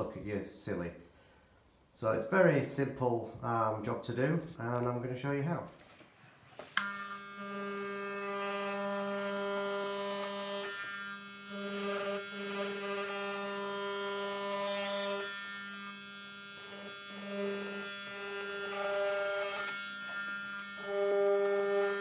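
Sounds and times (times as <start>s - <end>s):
electric hair clippers buzzing: 6.8s - 22.0s.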